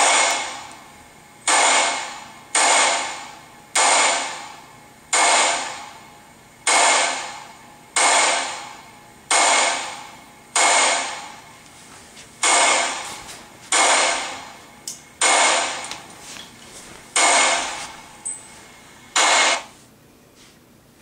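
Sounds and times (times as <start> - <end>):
gunshots through small speaker: 6.7 - 7.4, 19.2 - 19.7.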